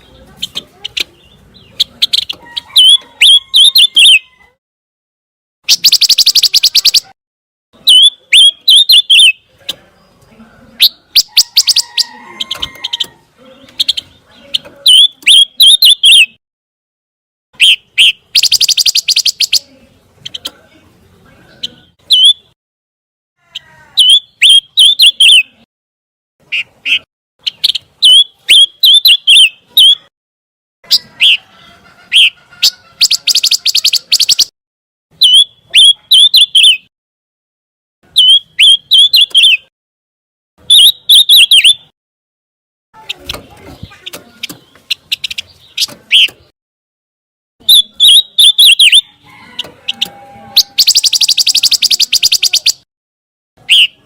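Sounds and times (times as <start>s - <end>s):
songbird singing: 0.0s - 4.6s, 5.6s - 7.2s, 7.8s - 16.4s, 17.6s - 22.6s, 23.5s - 25.7s, 26.4s - 30.1s, 30.8s - 34.5s, 35.1s - 36.9s, 38.1s - 39.7s, 40.6s - 41.9s, 43.0s - 46.5s, 47.6s - 52.9s, 53.6s - 54.0s.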